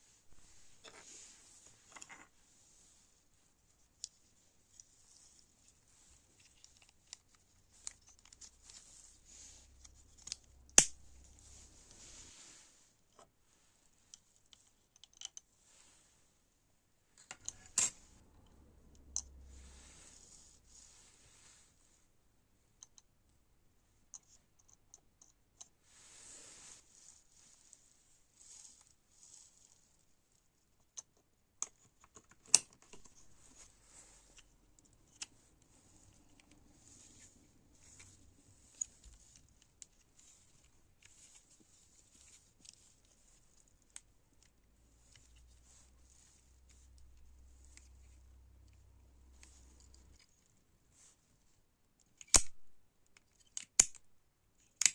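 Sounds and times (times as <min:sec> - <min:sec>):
soft hiss: 0:00.0 - 0:14.6, 0:25.7 - 0:30.7
soft rustles: 0:00.0 - 0:14.9, 0:15.5 - 0:16.6, 0:19.4 - 0:22.2, 0:25.7 - 0:30.8, 0:32.9 - 0:51.6
small clicks and light taps: 0:14.0 - 0:15.5, 0:22.8 - 0:23.2, 0:52.0 - 0:54.9.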